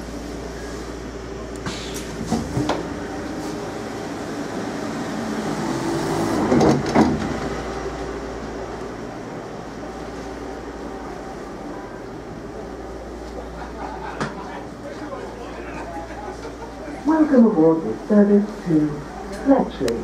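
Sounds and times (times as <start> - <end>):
train diesel engine humming: 0.0 - 20.0.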